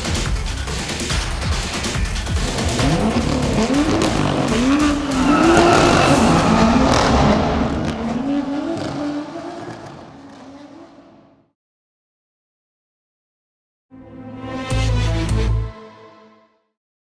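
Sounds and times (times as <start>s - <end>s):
car engine revving through gears: 1.9s - 11.5s.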